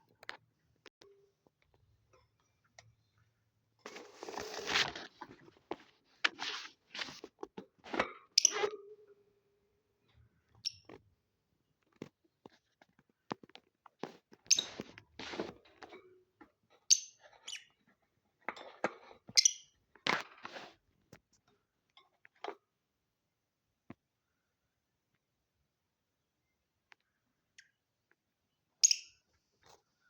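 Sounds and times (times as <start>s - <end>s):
birds scratching and crunching: 3.9s - 5.5s.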